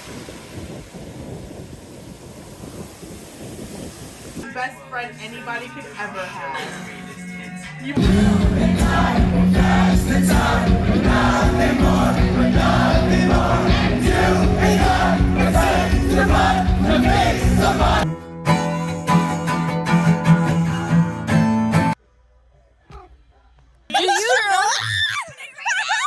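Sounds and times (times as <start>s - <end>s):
loud music with singing: 4.5s - 21.2s.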